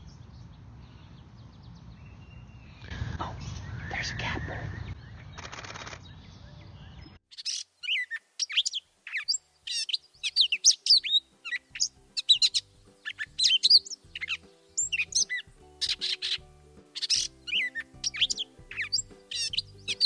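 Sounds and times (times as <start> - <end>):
bird singing varied chirps: 0.0 - 5.4, 6.0 - 20.0.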